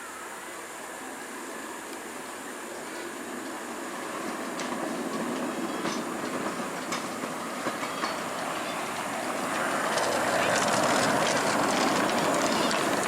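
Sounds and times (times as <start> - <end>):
steam train rumbling: 0.0 - 13.0
wheel clicks over rail joints: 4.5 - 13.0.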